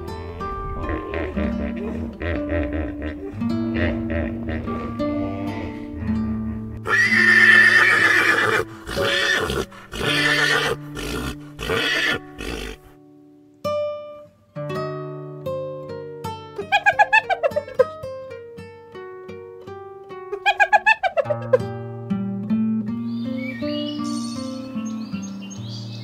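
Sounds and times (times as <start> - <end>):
plucked guitar-like music: 0.0 - 26.0
animal calling: 4.6 - 12.9, 16.6 - 17.8, 20.3 - 21.7.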